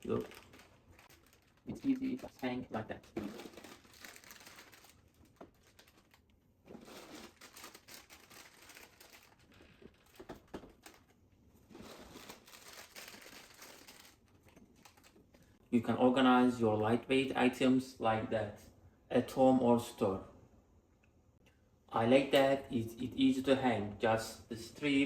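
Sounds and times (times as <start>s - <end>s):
plastic bags crinkling: 0.0s - 15.4s.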